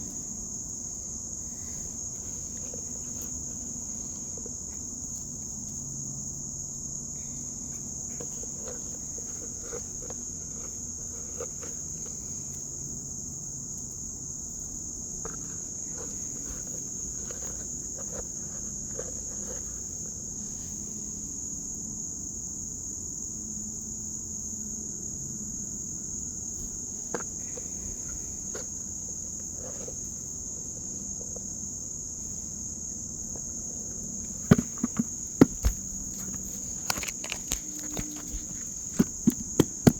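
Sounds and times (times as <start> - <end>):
crickets trilling: 0.0 - 39.9
loud knocks: 34.5 - 36.6, 37.2 - 39.9
faint taps: 34.5 - 39.9.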